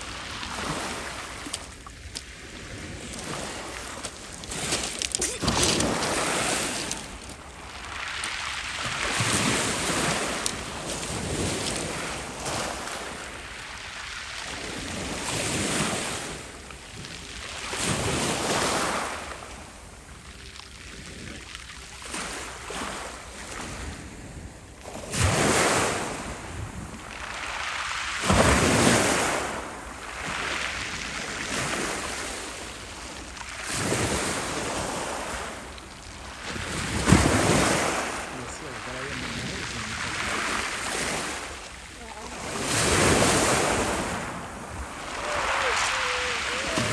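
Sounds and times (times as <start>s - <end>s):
waves breaking on shore: 0.0s - 46.9s
wind buffeting microphone: 38.9s - 46.9s.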